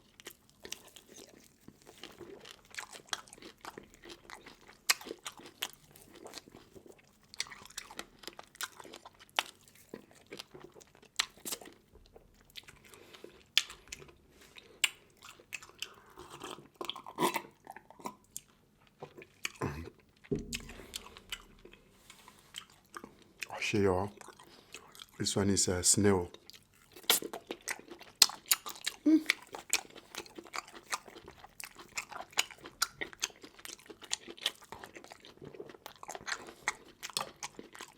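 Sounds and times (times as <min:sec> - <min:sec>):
crunching and chewing seafood: 0:00.0 - 0:37.9
dull thumps: 0:20.3 - 0:22.2.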